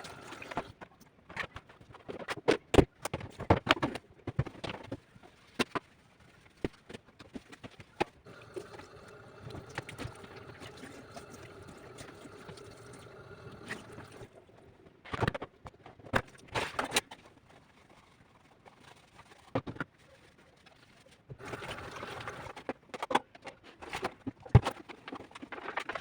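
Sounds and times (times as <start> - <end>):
faint hum: 8.3 - 14.9.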